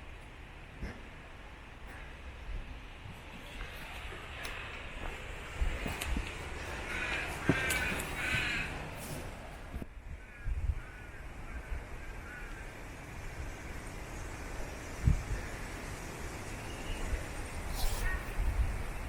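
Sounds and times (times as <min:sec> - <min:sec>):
crow cawing: 0:06.1 - 0:09.0, 0:10.2 - 0:12.8.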